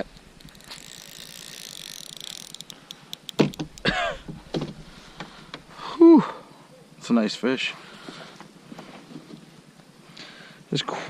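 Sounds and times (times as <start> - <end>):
spinning reel clicking: 0.0 - 3.9.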